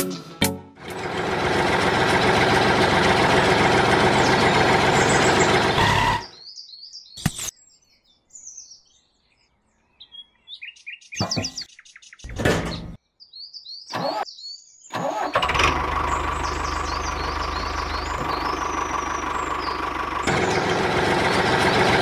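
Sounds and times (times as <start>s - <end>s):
small engine running: 0.8s - 6.3s, 15.0s - 22.0s
birds chirping: 1.2s - 22.0s.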